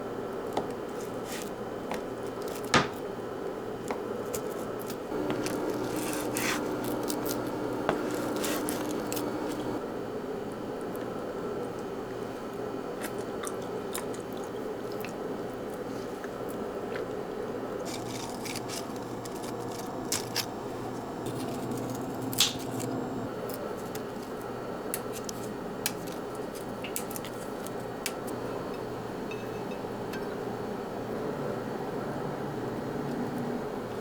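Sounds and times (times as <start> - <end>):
steady low hum: 5.1 - 9.8, 17.7 - 23.4.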